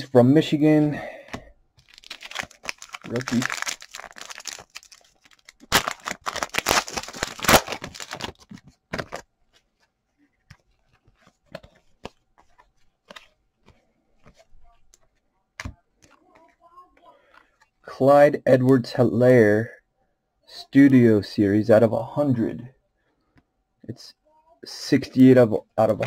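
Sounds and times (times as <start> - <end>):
foil wrapper tearing and crinkling: 1.8 - 8.5.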